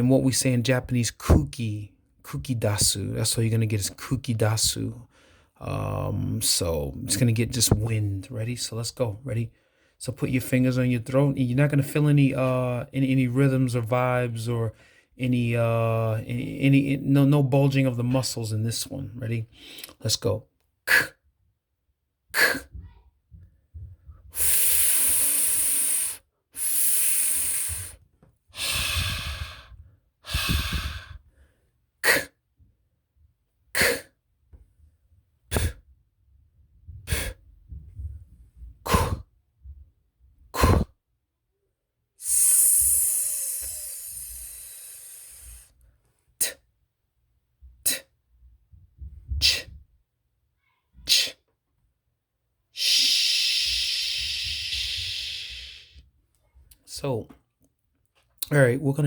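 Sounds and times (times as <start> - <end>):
man making hissing consonants: 20.9 - 21.2, 22.3 - 22.7, 24.3 - 28.0, 28.6 - 31.2, 32.0 - 32.4, 33.8 - 34.1, 35.5 - 35.8, 37.1 - 37.4, 38.9 - 39.2, 40.6 - 40.9, 42.2 - 45.7, 46.4 - 46.6, 47.8 - 48.1, 49.4 - 49.8, 51.0 - 51.4, 52.8 - 56.0
man making puffs of air: 20.9 - 21.2, 22.3 - 23.0, 24.3 - 31.3, 32.0 - 32.4, 33.8 - 34.2, 35.5 - 35.9, 37.0 - 37.4, 38.8 - 39.3, 40.5 - 40.9, 42.2 - 45.8, 46.4 - 46.7, 47.8 - 48.2, 49.3 - 49.8, 51.0 - 51.5, 52.8 - 56.1.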